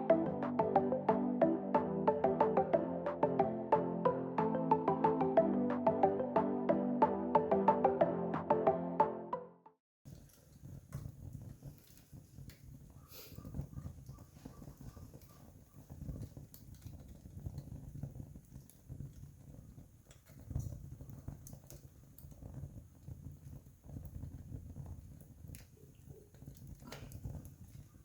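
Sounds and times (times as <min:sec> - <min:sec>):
campfire crackling and popping: 0:10.1 - 0:28.0.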